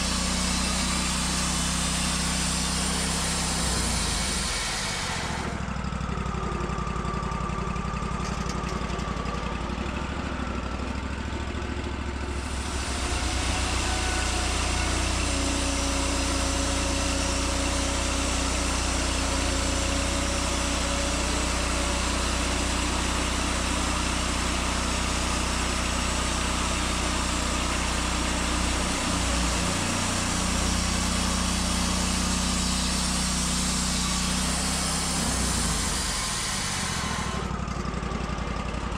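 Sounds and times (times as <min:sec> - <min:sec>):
hiss: 0:00.0 - 0:05.6, 0:12.3 - 0:22.3, 0:28.4 - 0:37.5
sawmill engine running: 0:00.0 - 0:38.9.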